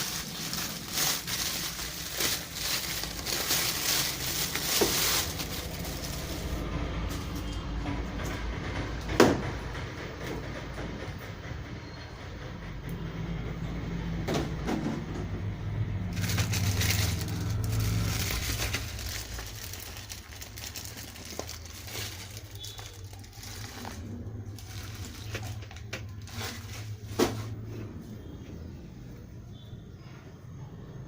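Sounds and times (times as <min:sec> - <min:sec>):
plastic and cardboard rustling: 0:00.0 - 0:07.6, 0:16.0 - 0:27.8.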